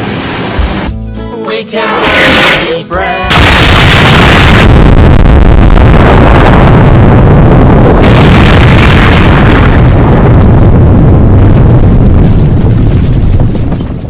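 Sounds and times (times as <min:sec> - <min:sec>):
distorted rumbling explosions: 0:03.3 - 0:14.0.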